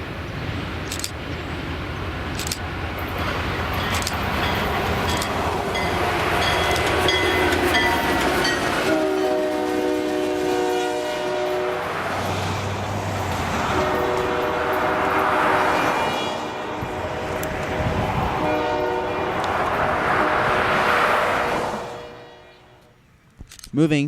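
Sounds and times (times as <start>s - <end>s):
locomotive engine rumbling: 0.0s - 23.8s
locomotive horn blast: 5.7s - 12.0s, 13.5s - 23.0s.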